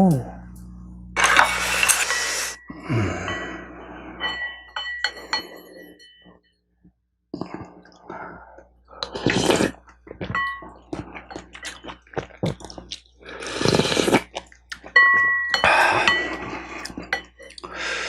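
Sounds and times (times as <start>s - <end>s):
utensil clinking against bowl: 4.2s - 6.3s, 10.3s - 11.9s, 14.8s - 17.6s
slurping soup: 9.0s - 10.0s, 10.7s - 14.5s
chewing: 9.0s - 15.0s.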